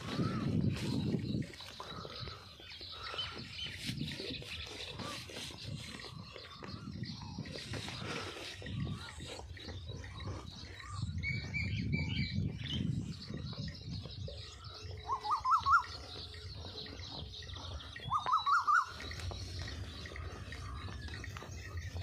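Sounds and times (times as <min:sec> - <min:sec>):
small bird chirps: 0:00.1 - 0:22.0
bird calls of quick notes: 0:18.0 - 0:19.1.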